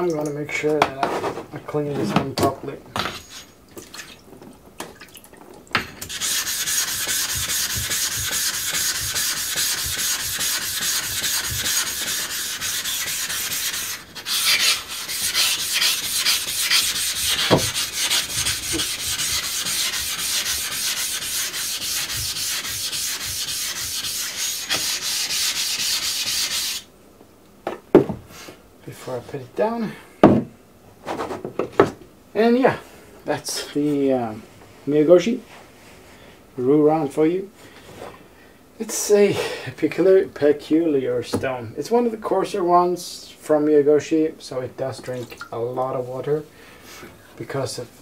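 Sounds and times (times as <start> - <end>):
scrubbing a whetstone: 6.1 - 26.8.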